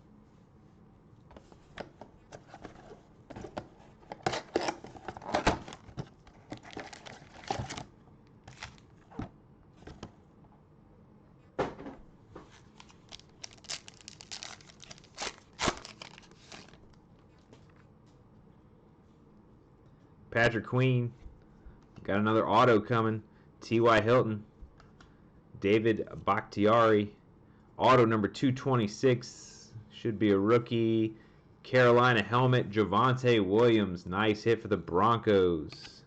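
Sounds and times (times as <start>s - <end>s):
wrapping crackling: 4.2s - 7.8s, 8.4s - 9.0s, 12.5s - 17.4s
plastic and foil wrapping tearing: 4.3s - 7.8s, 8.5s - 8.8s, 12.6s - 17.0s.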